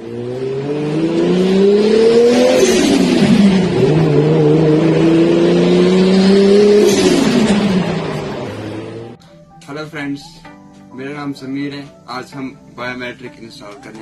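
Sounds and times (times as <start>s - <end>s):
car engine accelerating hard: 0.0s - 9.2s.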